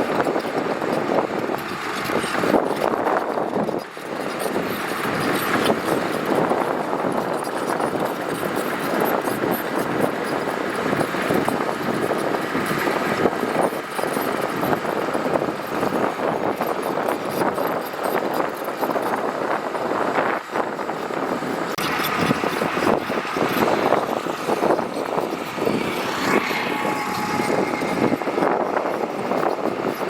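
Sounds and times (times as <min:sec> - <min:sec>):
earthmoving machinery working gravel: 0:00.0 - 0:30.0.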